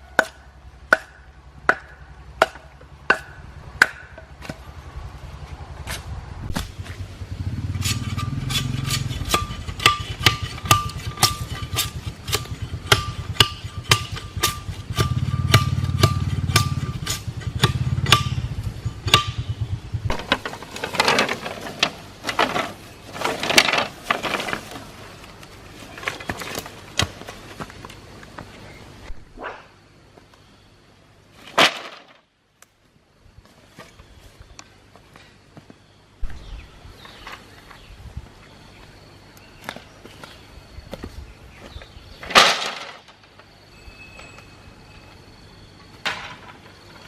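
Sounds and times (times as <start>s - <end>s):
rough scraping strokes: 5.8s - 12.9s.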